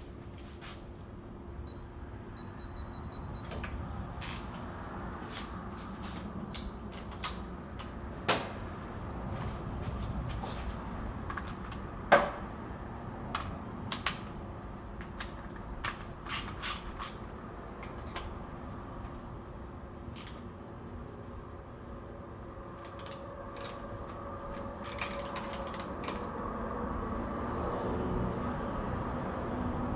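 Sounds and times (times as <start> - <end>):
tools and parts clicking: 3.5 - 4.6, 6.5 - 8.6, 13.3 - 14.4, 15.0 - 18.4, 20.1 - 20.5, 22.8 - 26.3.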